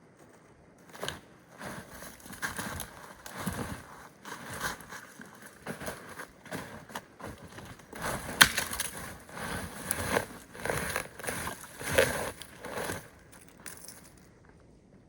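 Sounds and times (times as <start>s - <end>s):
wood rustling and crunching: 0.9s - 14.3s.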